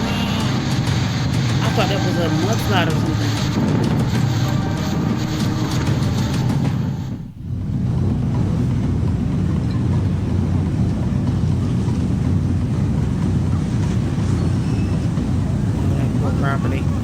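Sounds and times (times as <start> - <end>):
background music: 0.0 - 7.2
low rumbling noise: 0.0 - 17.0.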